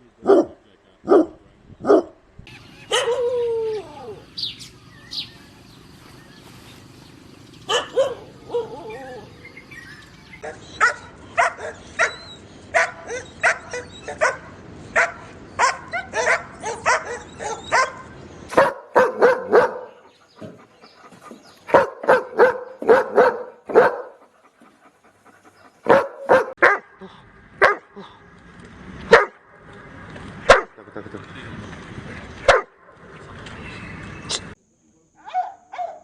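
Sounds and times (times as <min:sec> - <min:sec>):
dogs barking: 0:00.2 - 0:02.2, 0:02.8 - 0:03.8, 0:07.6 - 0:27.0, 0:27.6 - 0:28.2, 0:29.1 - 0:29.4, 0:30.4 - 0:30.8, 0:32.4 - 0:33.0, 0:35.3 - 0:36.0.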